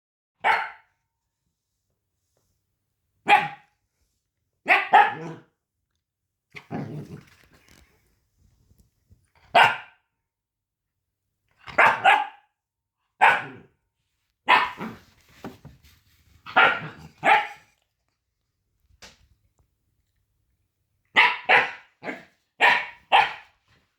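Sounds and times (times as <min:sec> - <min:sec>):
puppy barking: 0:00.4 - 0:00.9, 0:03.2 - 0:03.7, 0:04.6 - 0:05.5, 0:09.5 - 0:10.0, 0:11.7 - 0:12.5, 0:13.2 - 0:13.7, 0:14.4 - 0:15.0, 0:16.5 - 0:17.7, 0:21.1 - 0:23.6.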